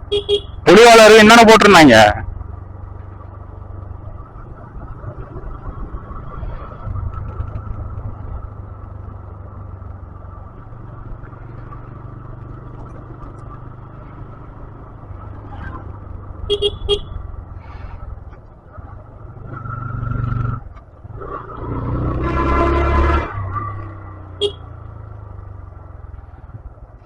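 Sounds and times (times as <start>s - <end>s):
road and wind noise: 0.0s - 27.0s
motorcycle horn toots: 0.1s - 0.6s, 16.4s - 17.3s, 22.2s - 23.3s, 24.3s - 24.7s.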